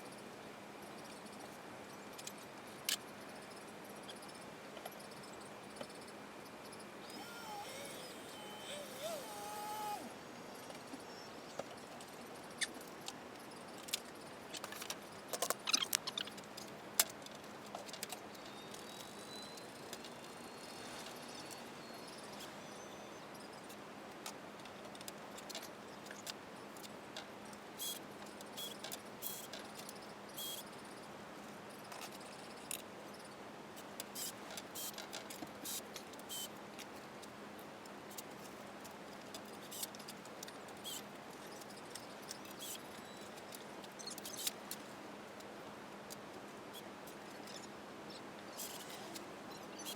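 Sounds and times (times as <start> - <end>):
faint steady hum: 0.0 - 34.2.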